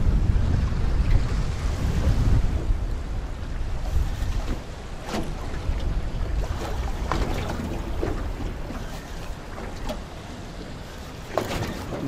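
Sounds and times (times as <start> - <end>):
waves slapping against boat: 0.0 - 12.0
wind buffeting microphone: 0.0 - 12.0.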